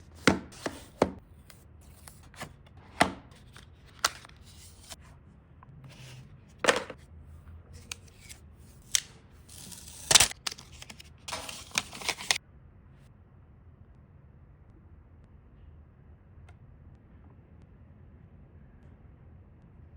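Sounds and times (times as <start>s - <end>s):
cardboard and paper rustling: 0.0s - 1.2s, 1.8s - 5.1s, 5.9s - 7.0s, 7.8s - 12.4s.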